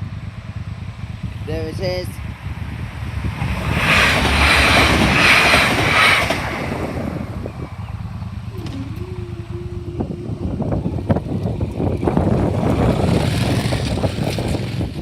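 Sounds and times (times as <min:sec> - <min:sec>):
train rushing and rumbling: 0:00.0 - 0:15.0
wheels clicking on rails: 0:00.0 - 0:15.0.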